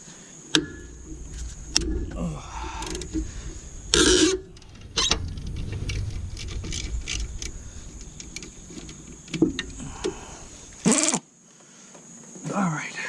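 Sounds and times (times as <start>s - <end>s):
low handling rumble: 0.0s - 10.9s.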